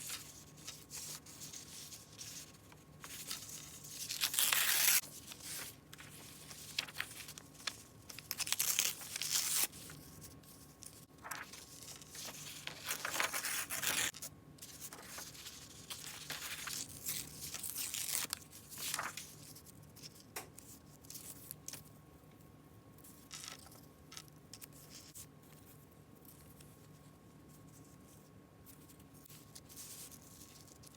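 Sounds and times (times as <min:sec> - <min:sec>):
paper crinkling: 0:00.0 - 0:20.2
paper tearing: 0:03.2 - 0:05.6, 0:08.2 - 0:09.9, 0:11.2 - 0:14.2, 0:15.0 - 0:19.2.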